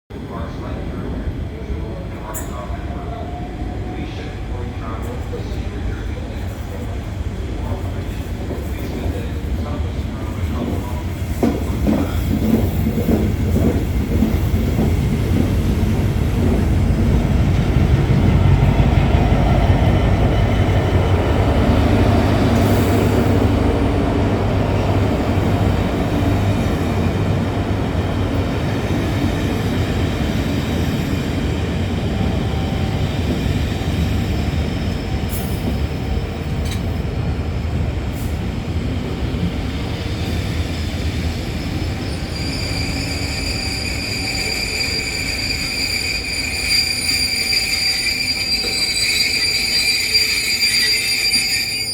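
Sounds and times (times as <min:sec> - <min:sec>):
train rumbling: 0:00.2 - 0:51.9
wheel squeal: 0:41.6 - 0:51.9.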